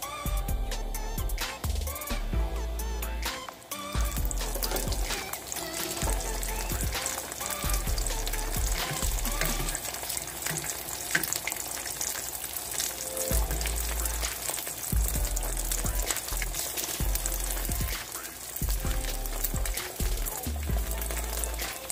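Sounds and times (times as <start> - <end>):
background music: 0.0 - 11.4, 12.4 - 21.9
egg sizzling in frying pan: 3.3 - 21.9
spatula on pan: 3.8 - 13.0.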